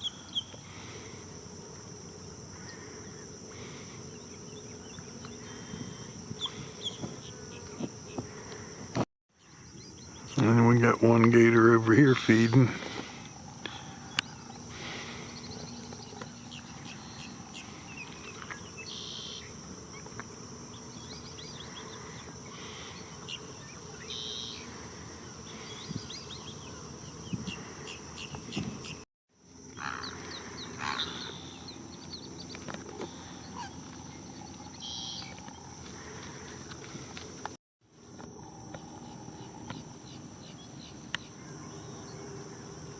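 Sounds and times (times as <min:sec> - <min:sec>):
insect buzzing: 0:00.0 - 0:42.9
birds chirping: 0:02.6 - 0:08.7, 0:09.4 - 0:24.7.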